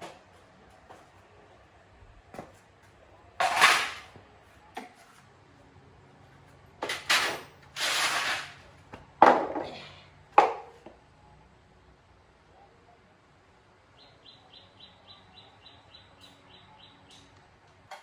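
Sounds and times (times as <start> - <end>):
tools clattering and scraping: 3.4 - 4.2, 6.8 - 9.8.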